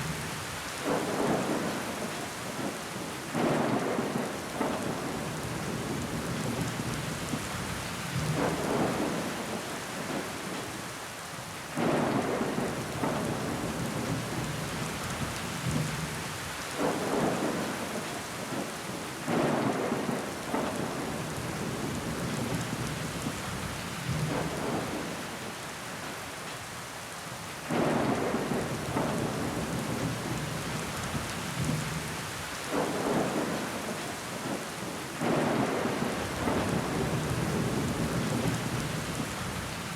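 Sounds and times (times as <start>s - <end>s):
rain pattering on window glass: 11.8s - 25.6s, 27.7s - 39.9s.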